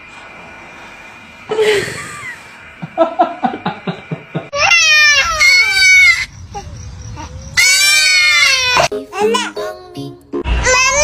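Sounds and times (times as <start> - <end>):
child laughing: 4.5 - 9.4
child squealing: 4.6 - 8.9.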